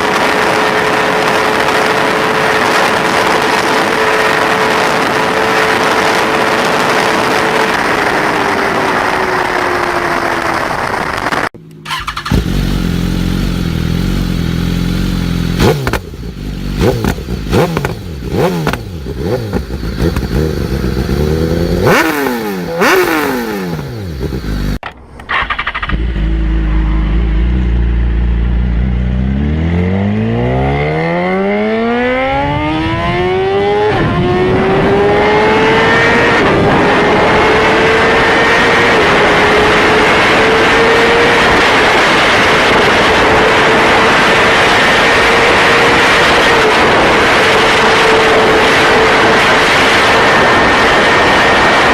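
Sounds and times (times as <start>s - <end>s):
motorcycle engine: 0.0s - 51.9s
wind noise: 31.7s - 51.9s.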